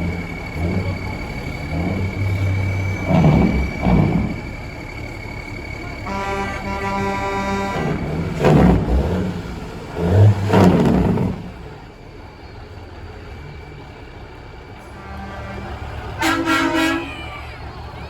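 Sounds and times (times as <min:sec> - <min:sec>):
truck engine running: 0:00.0 - 0:18.0
trucks passing: 0:00.0 - 0:18.0
air horn blast: 0:06.0 - 0:08.9, 0:14.9 - 0:17.4.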